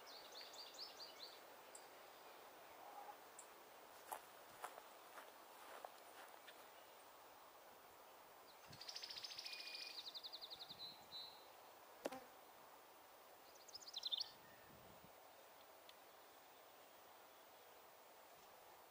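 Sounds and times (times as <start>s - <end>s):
songbird trilling: 8.5s - 11.5s, 13.4s - 15.7s.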